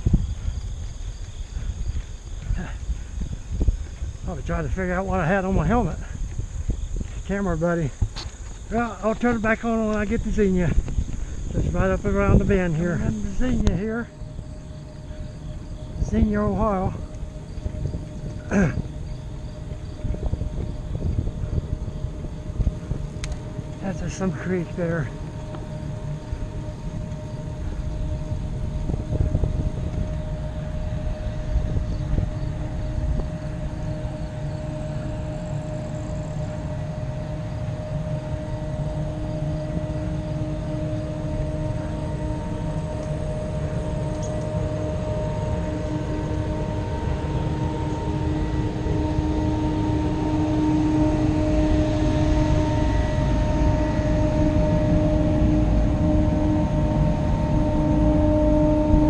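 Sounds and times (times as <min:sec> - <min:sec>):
steady hum: 0:00.0 - 0:59.0
wind buffeting microphone: 0:00.0 - 0:59.0.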